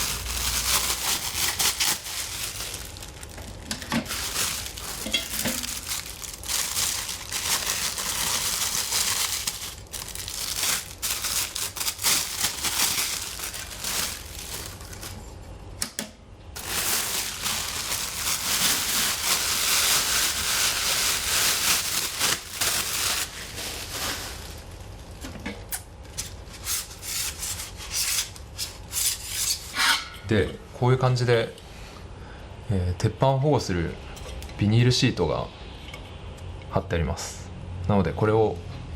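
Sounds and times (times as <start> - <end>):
packaging crinkling and rustling: 0.0 - 15.3, 16.6 - 29.5.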